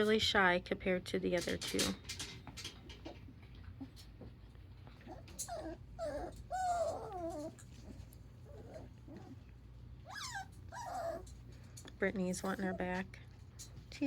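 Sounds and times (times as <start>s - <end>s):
light scratching and rustling: 1.4s - 14.0s
puppy whimpering: 5.0s - 11.5s.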